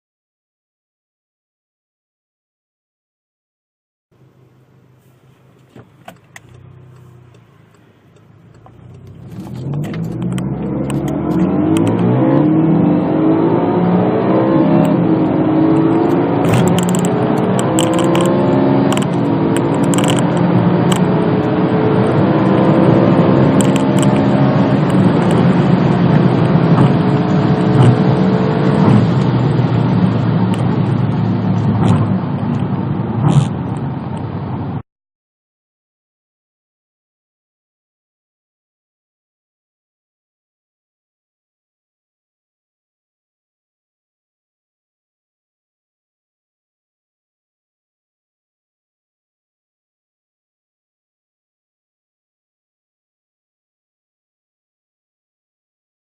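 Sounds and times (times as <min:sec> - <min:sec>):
car engine accelerating hard: 0:05.7 - 0:34.8.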